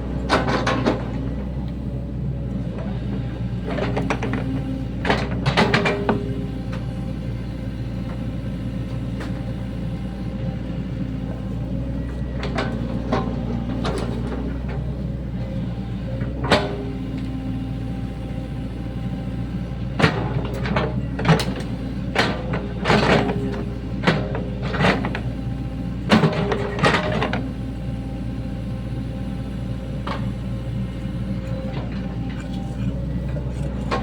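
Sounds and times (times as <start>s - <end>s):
excavator diesel engine running: 0.0s - 34.0s
machine knocks and clanks: 0.2s - 1.8s, 3.6s - 6.8s, 26.0s - 27.5s.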